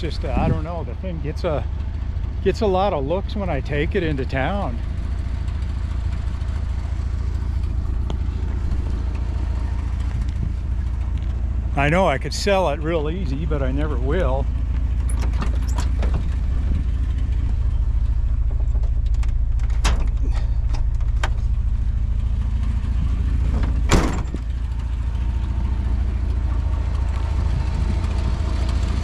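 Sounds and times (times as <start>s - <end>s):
engine idling low rumble: 0.0s - 29.0s
door or latch thump: 23.5s - 24.4s.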